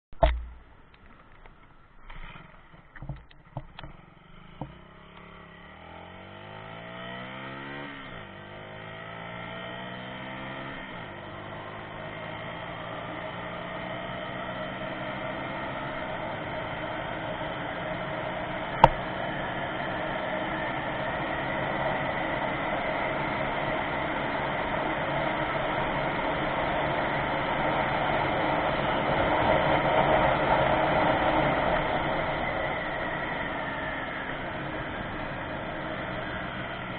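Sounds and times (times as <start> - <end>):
motorcycle engine accelerating: 0.0 - 36.9
sharp click: 0.1 - 1.7, 18.8 - 19.0.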